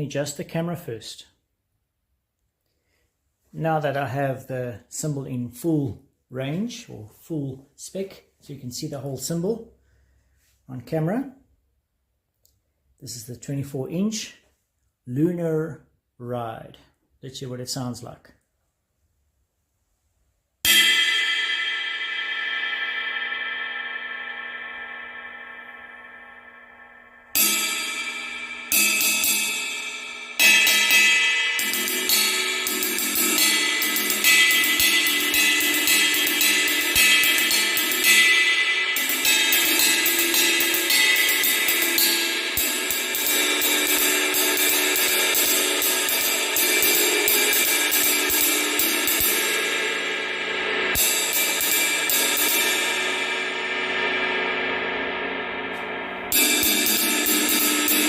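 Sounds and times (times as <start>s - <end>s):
ride cymbal strikes: 20.6s - 58.0s.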